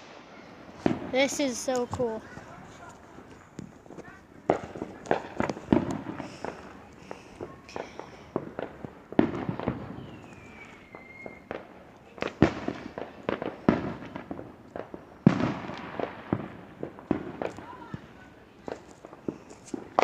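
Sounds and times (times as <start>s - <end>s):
fireworks bangs and crackling pops: 0.0s - 20.0s
falling firework whistle: 9.6s - 11.6s.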